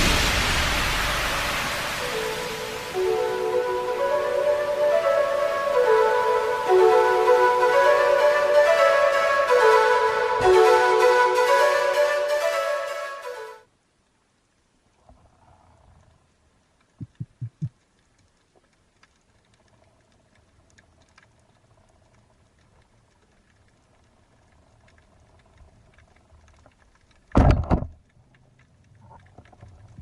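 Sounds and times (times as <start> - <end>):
sudden burst of noise: 0.0 - 6.9
faint underwater crackling: 13.6 - 30.0.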